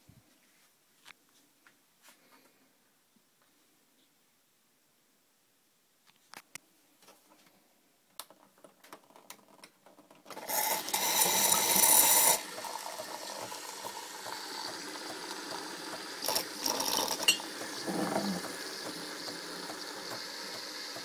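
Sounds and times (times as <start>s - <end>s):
coffee machine whirring: 10.3s - 21.0s
water running in coffee machine: 10.3s - 21.0s.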